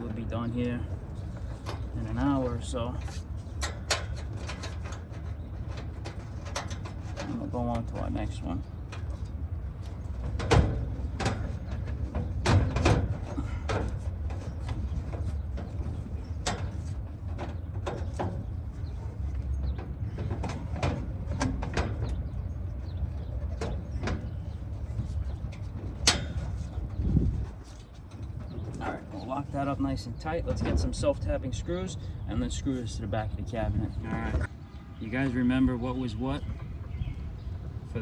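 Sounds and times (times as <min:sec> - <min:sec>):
clicks and knocks on metal hardware: 0:00.0 - 0:29.3.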